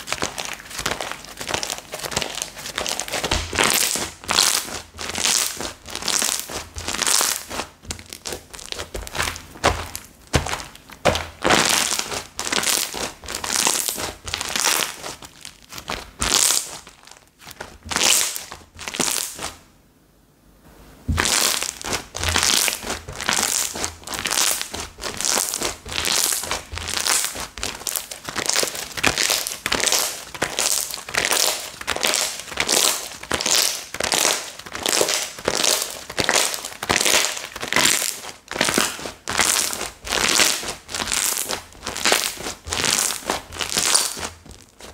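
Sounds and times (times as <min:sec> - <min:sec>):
slime squishing and crackling: 0:00.0 - 0:19.6, 0:21.1 - 0:44.9.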